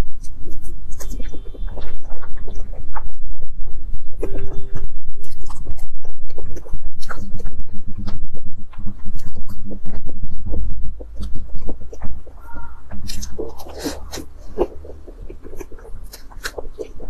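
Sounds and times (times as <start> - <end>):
chewing clicks and smacks: 4.2 - 17.0.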